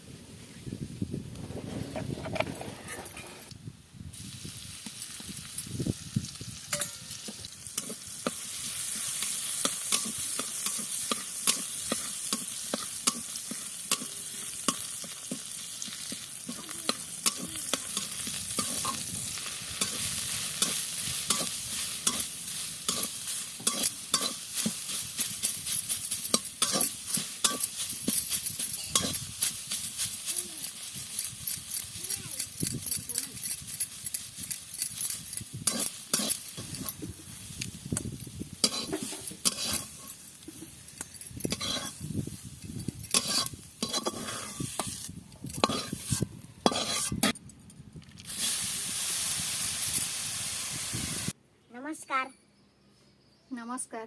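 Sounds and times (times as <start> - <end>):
greens sizzling in a pan: 4.1 - 31.9, 35.5 - 40.9, 41.5 - 47.1, 48.3 - 51.4
spatula scraping a pan: 7.8 - 30.0, 35.1 - 37.0, 38.6 - 40.2, 41.4 - 42.0, 43.1 - 47.4.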